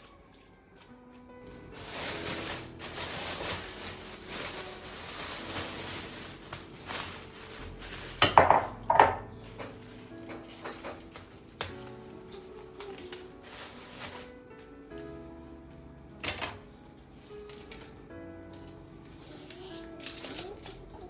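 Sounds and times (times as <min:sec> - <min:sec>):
dishware clattering: 0:08.0 - 0:11.1.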